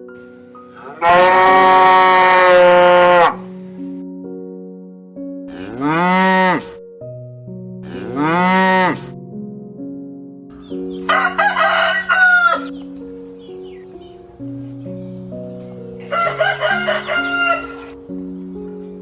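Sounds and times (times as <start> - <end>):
keyboard background music: 0.0 - 19.0
cow mooing: 0.8 - 3.5, 5.5 - 6.7, 7.8 - 9.2
chicken calls: 10.6 - 13.0, 15.6 - 18.0.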